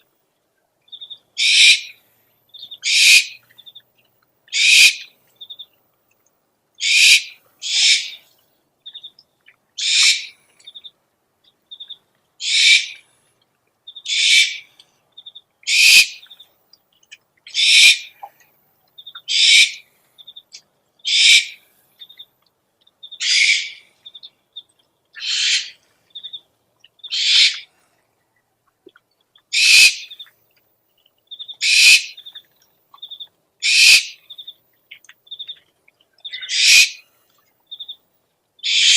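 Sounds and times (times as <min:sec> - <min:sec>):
owl hissing screeches: 0:01.4 - 0:01.9, 0:02.8 - 0:03.4, 0:04.6 - 0:05.0, 0:06.8 - 0:08.2, 0:09.8 - 0:10.3, 0:12.4 - 0:13.0, 0:14.1 - 0:14.7, 0:15.7 - 0:16.2, 0:17.5 - 0:18.1, 0:19.3 - 0:19.8, 0:21.1 - 0:21.6, 0:23.2 - 0:23.8, 0:25.2 - 0:25.8, 0:27.1 - 0:27.7, 0:29.6 - 0:30.1, 0:31.6 - 0:32.2, 0:33.6 - 0:34.2, 0:36.4 - 0:37.0, 0:38.6 - 0:38.9.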